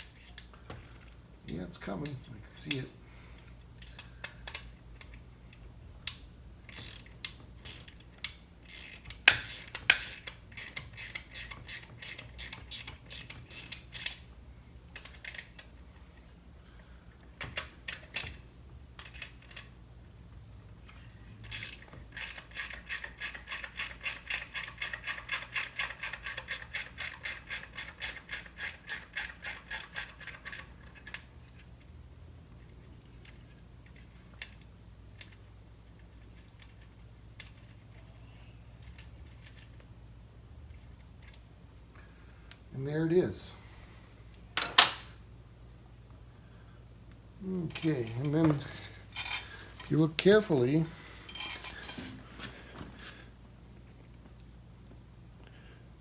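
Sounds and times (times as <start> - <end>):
ratchet wrench clicking: 6.1 - 14.2, 21.4 - 30.7.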